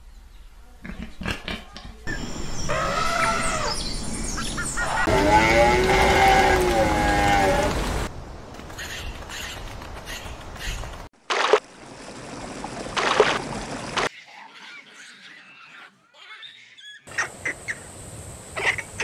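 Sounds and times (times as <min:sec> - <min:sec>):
harsh screeching animal calls: 0:02.1 - 0:07.8.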